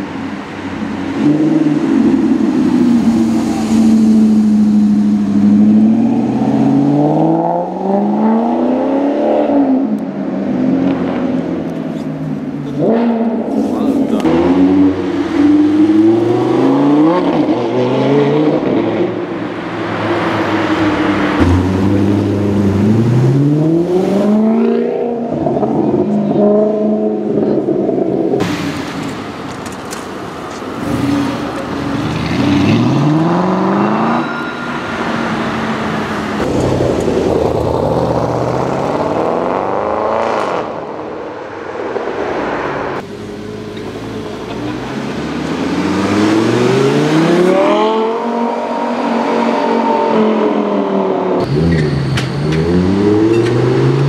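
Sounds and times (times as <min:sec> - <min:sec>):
sports car engines accelerating past: 0:12.7 - 0:28.4, 0:30.8 - 0:54.0.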